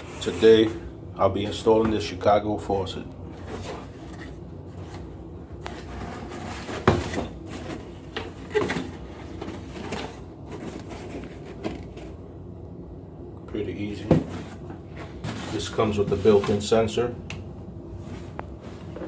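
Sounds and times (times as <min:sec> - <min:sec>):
knocks and clunks of objects moved: 0:03.3 - 0:12.2, 0:14.0 - 0:16.6.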